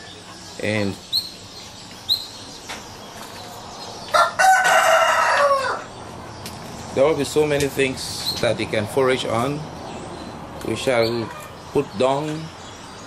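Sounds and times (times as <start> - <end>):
small bird chirping: 0.0 - 4.4, 5.6 - 13.0
rooster crowing: 4.0 - 6.0.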